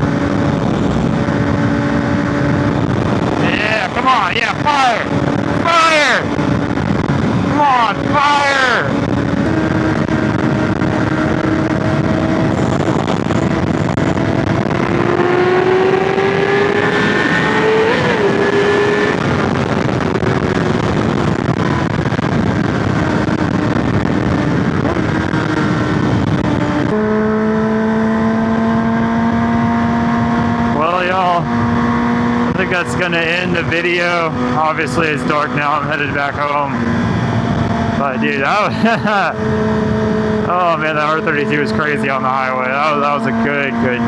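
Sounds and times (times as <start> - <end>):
motorcycle engine running: 0.0 - 5.6, 6.2 - 44.0
wind rushing: 0.0 - 27.0.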